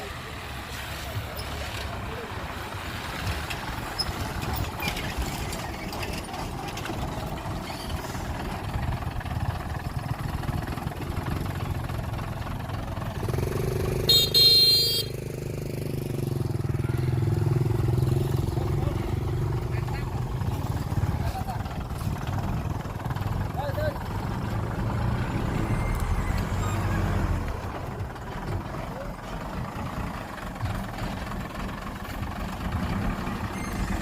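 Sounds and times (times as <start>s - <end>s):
heavy diesel machinery running: 0.0s - 34.0s
brief high-pitched squeal: 25.4s - 27.2s, 33.5s - 34.0s.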